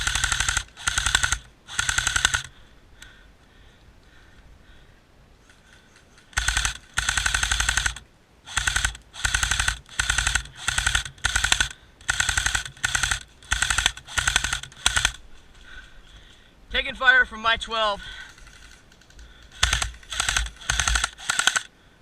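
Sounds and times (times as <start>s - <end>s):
airsoft rifle automatic bursts: 0.0s - 2.5s, 6.3s - 15.2s, 18.3s - 21.7s.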